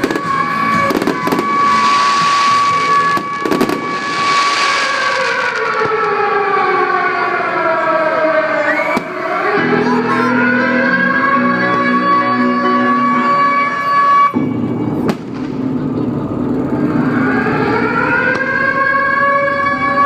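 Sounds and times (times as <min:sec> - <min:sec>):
steady high tone: 0:00.0 - 0:05.7
fireworks bangs: 0:00.0 - 0:06.9, 0:14.3 - 0:15.8
fireworks crackling hiss: 0:00.8 - 0:05.7.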